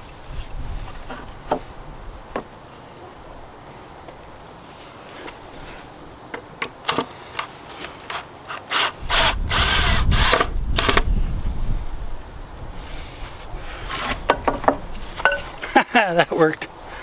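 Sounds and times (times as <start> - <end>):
power drill driving a screw: 8.1 - 11.0.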